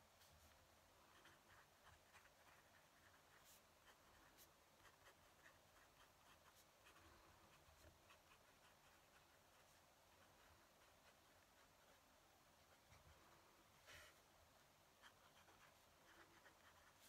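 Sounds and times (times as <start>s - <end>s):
pen nib scratching on paper: 0.2s - 17.0s.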